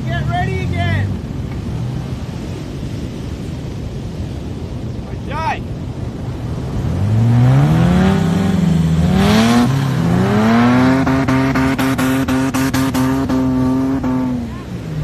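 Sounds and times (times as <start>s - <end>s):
engine revving hard: 6.9s - 14.5s.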